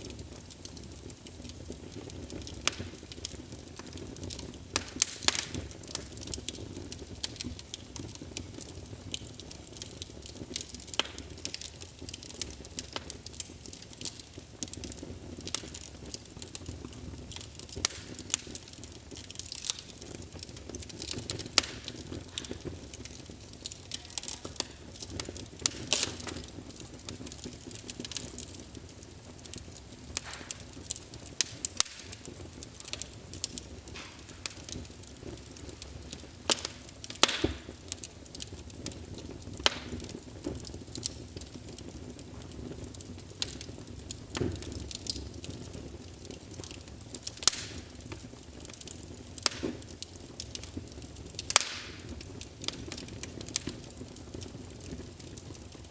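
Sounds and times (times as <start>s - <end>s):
fire crackling pops and snaps: 0.0s - 55.9s
hiss of burning logs: 0.0s - 55.9s.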